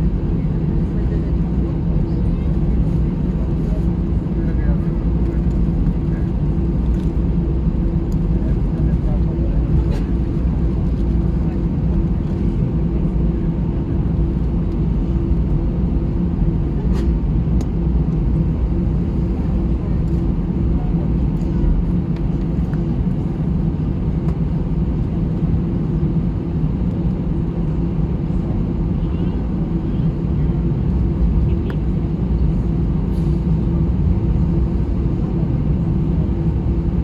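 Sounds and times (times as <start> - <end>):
jet engines idling rumble: 0.0 - 37.0.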